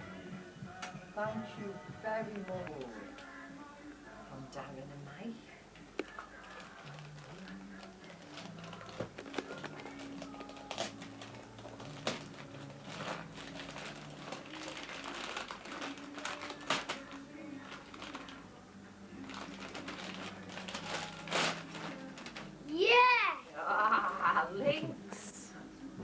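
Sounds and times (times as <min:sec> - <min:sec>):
wrapping paper rustling and tearing: 0:06.4 - 0:18.5, 0:19.2 - 0:23.0.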